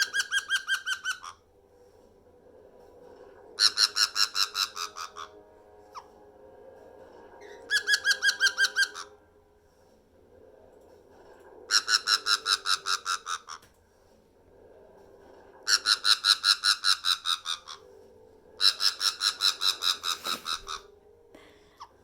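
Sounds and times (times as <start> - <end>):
parrot laughing: 0.0 - 1.4, 3.6 - 5.3, 18.6 - 20.9.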